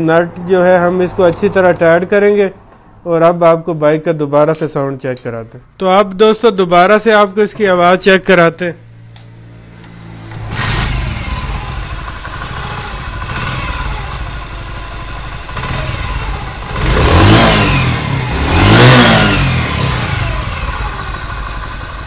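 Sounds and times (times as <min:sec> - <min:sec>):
motorcycle engine revving: 0:08.8 - 0:22.0.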